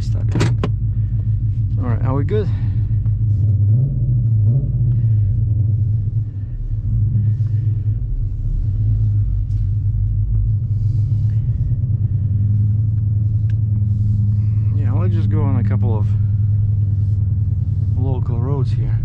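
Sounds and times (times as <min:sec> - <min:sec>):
deep car exhaust rumble: 0:00.0 - 0:19.0.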